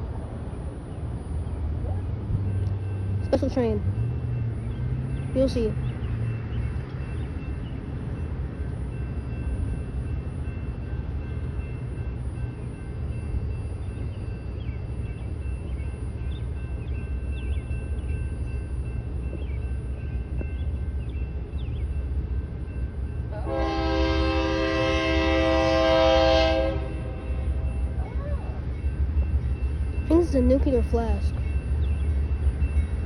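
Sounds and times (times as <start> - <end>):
diesel locomotive rumble: 0.0 - 33.0.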